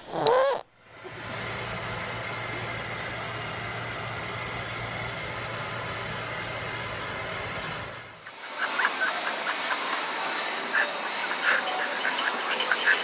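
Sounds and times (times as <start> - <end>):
low hum with high whine: 0.6 - 13.0.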